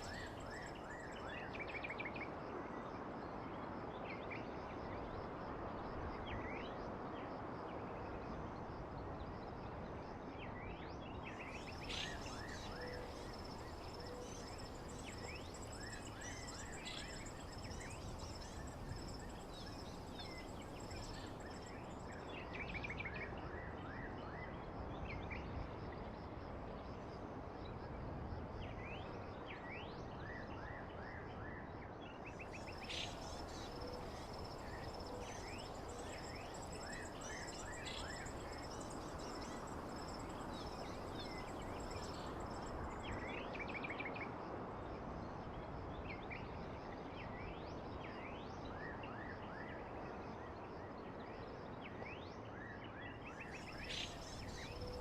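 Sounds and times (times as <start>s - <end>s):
insect drone: 0.0s - 2.0s, 11.3s - 23.2s, 32.4s - 44.1s, 53.3s - 55.0s.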